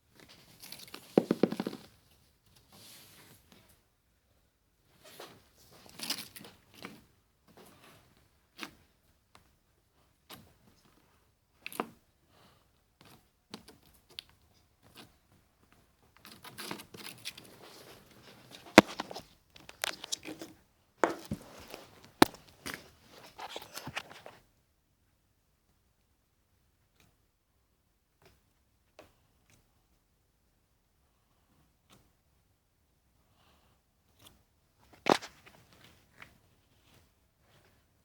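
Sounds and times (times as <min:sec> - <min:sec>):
crinkling and rustling: 0:00.2 - 0:03.7, 0:13.6 - 0:24.5.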